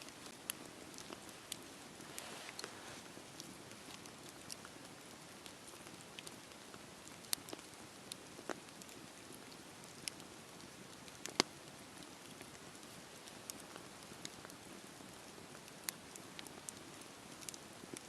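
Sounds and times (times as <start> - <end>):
burning wood popping: 0.1 - 18.0
flame rushing: 1.9 - 3.1.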